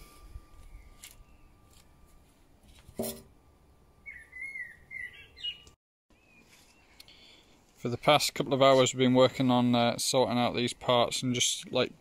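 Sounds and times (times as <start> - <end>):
songbird warbling: 4.0 - 6.4.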